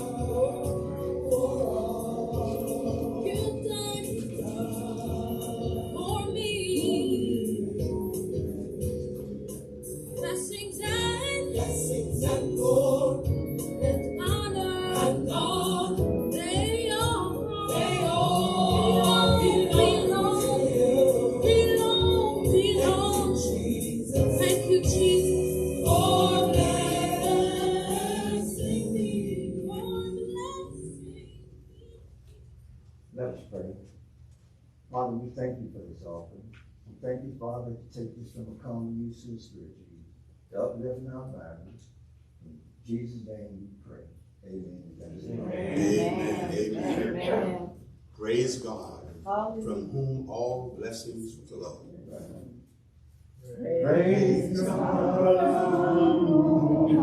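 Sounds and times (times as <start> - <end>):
gospel choir singing over instruments: 0.0 - 10.2, 11.2 - 31.0, 45.2 - 47.8, 53.4 - 57.0.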